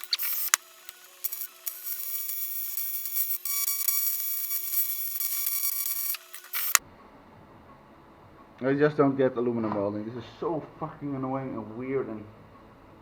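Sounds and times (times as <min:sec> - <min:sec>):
welder hum: 0:00.0 - 0:06.8
welding arc buzzing: 0:00.0 - 0:06.8.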